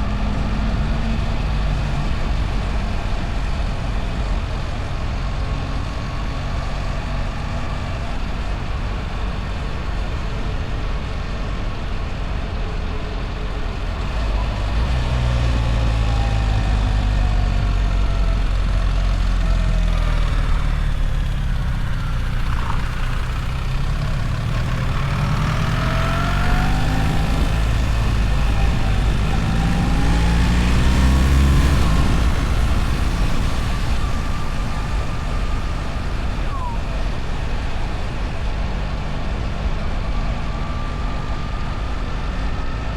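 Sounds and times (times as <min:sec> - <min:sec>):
wind and road noise: 0:00.0 - 0:42.9
motorcycle engine: 0:13.7 - 0:42.0.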